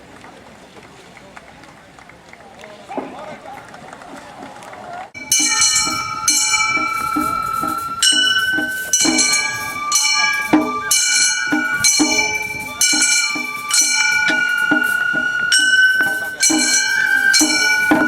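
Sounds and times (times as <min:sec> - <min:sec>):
bamboo flute melody: 0:05.1 - 0:18.0
drum beating: 0:05.1 - 0:18.0
small hand gongs striking: 0:05.2 - 0:18.0.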